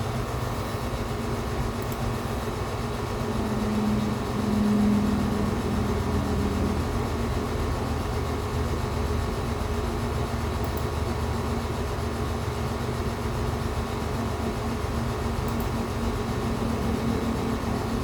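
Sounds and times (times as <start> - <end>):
low mechanical droning hum: 0.0 - 18.0.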